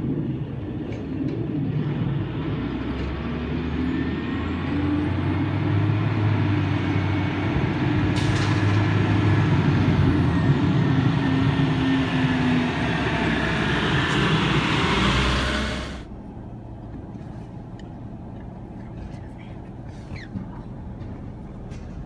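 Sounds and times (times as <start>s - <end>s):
garbage truck engine rumbling: 5.7s - 16.4s.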